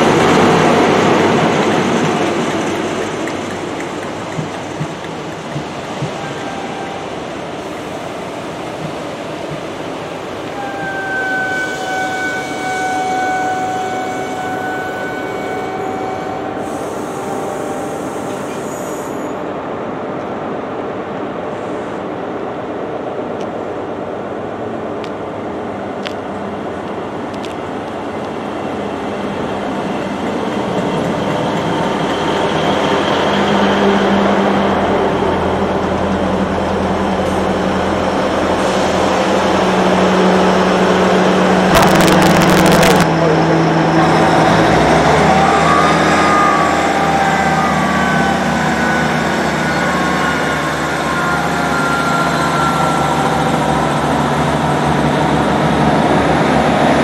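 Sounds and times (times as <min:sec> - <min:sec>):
train wheels rumbling on track: 0:00.0 - 0:57.0
long high held tone: 0:06.2 - 0:07.6, 0:41.7 - 0:54.4.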